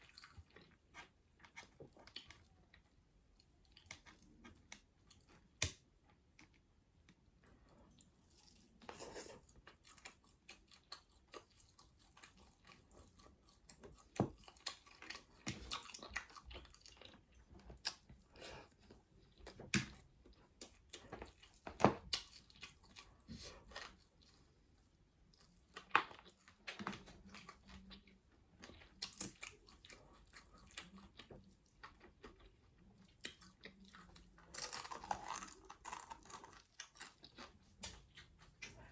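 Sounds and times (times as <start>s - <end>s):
wet chewing and smacking: 0.0s - 38.9s.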